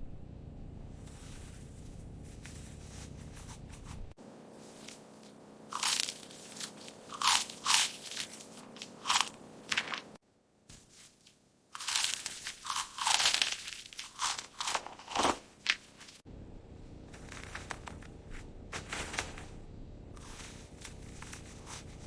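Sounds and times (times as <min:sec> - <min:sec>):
cat chewing crunchy food: 0:04.9 - 0:09.9, 0:11.8 - 0:16.0.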